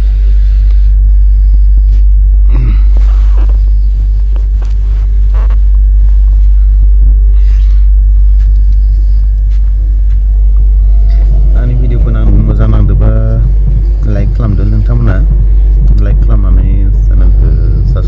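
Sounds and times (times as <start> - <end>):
passenger train rumbling: 10.6 - 18.0.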